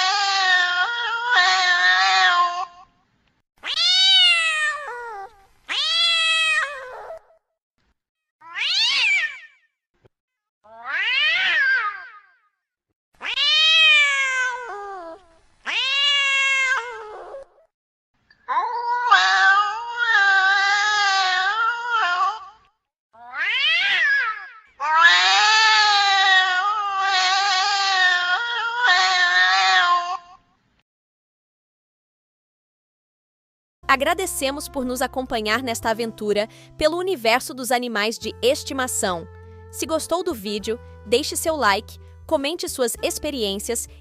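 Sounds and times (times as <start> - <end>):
cat yowling: 0.0 - 2.8, 3.6 - 7.4, 8.4 - 9.6, 10.7 - 12.4, 13.2 - 17.6, 18.5 - 22.6, 23.2 - 30.4.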